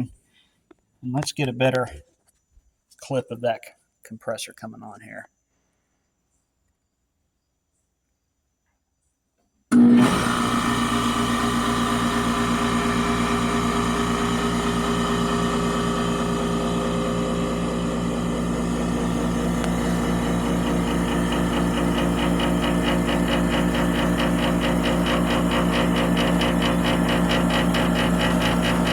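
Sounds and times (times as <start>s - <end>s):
air conditioner compressor humming: 9.9s - 28.9s.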